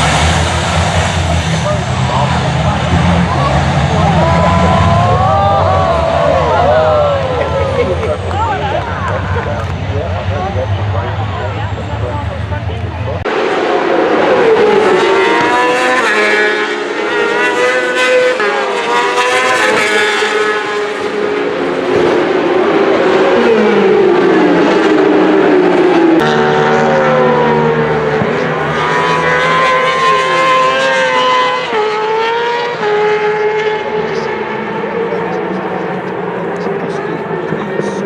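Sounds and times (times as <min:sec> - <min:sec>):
racing engines at high revs: 0:00.0 - 0:38.0.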